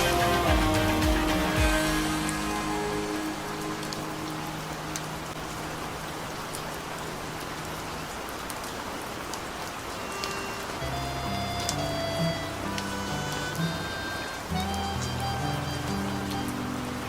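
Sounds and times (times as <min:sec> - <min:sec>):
music: 0:00.0 - 0:05.1, 0:10.2 - 0:17.0
rain falling: 0:00.0 - 0:17.0.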